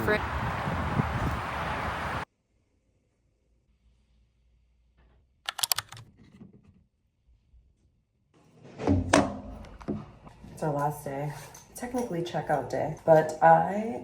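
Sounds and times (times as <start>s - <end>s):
sharp clicks: 5.5s - 6.1s
knocks and handling noise: 5.9s - 7.0s, 8.6s - 10.8s.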